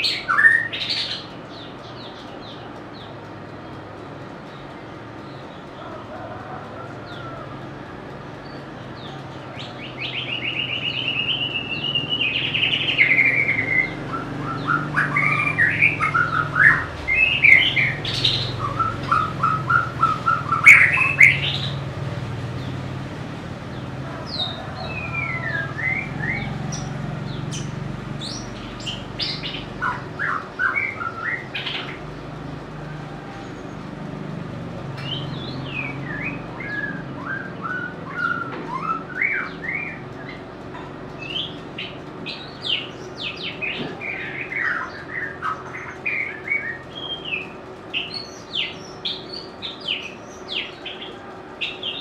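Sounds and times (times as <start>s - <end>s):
low steady hum: 0.0s - 52.0s
bird singing whistled phrases: 10.0s - 21.8s.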